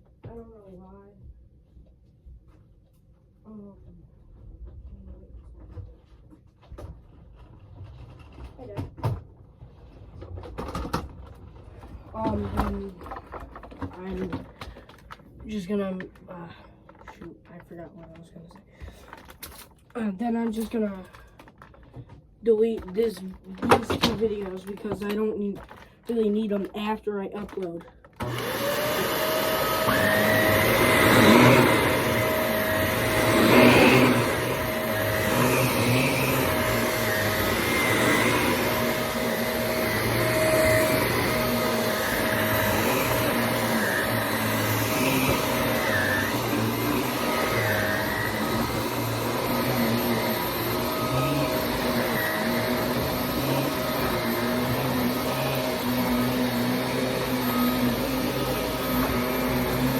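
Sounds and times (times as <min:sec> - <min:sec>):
vacuum cleaner motor humming: 0:28.1 - 0:59.9.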